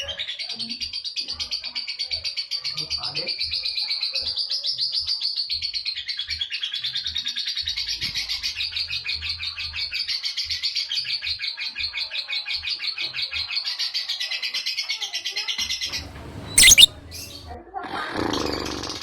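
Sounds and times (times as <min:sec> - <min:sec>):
lovebird chattering trill: 0:16.0 - 0:17.4.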